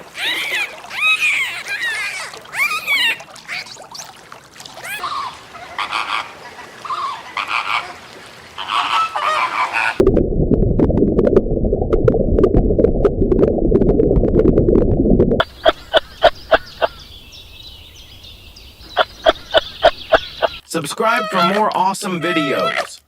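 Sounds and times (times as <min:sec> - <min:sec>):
geese honking: 0:04.9 - 0:10.0, 0:19.0 - 0:23.0
muffled rumbling with sharp ticks: 0:10.0 - 0:15.5.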